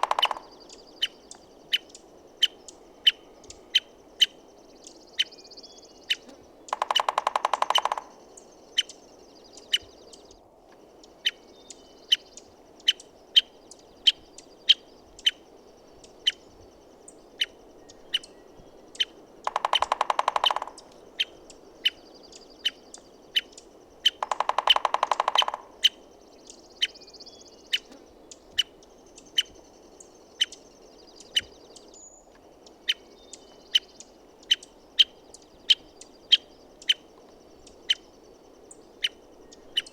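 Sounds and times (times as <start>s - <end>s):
woodpecker rapid drumming: 0.0s - 0.6s, 6.7s - 8.3s, 19.4s - 21.0s, 24.1s - 26.0s
woodpecker call notes: 0.0s - 39.9s.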